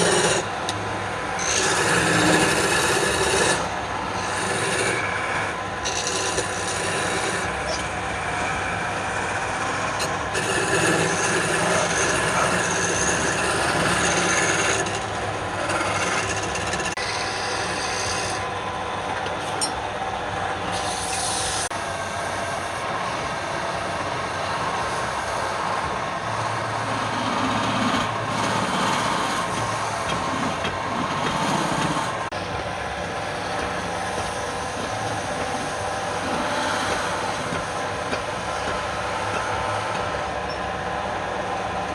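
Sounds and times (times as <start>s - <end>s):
wood lathe tool rasping: 0.0s - 18.5s, 20.7s - 40.4s.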